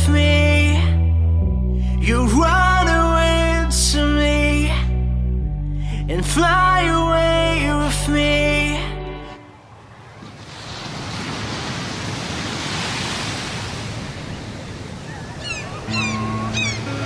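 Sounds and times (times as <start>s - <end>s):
music: 0.0s - 9.4s, 15.9s - 17.0s
ocean waves breaking: 9.2s - 17.0s.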